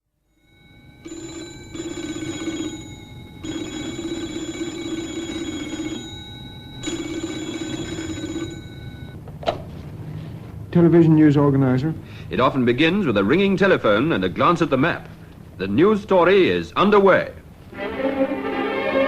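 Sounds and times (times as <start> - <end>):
telephone bell ringing: 0.2 - 9.2.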